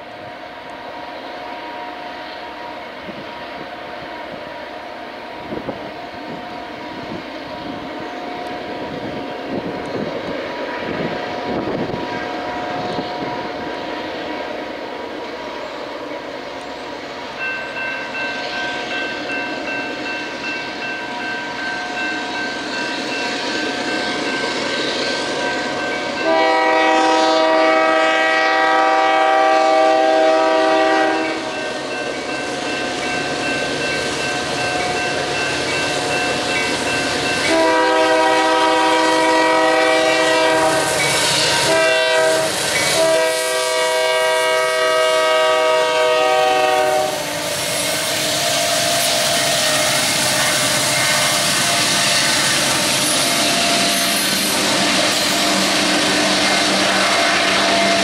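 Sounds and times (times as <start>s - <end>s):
diesel locomotives approaching: 0.0s - 58.0s
locomotive air horn: 26.2s - 31.7s, 37.5s - 58.0s.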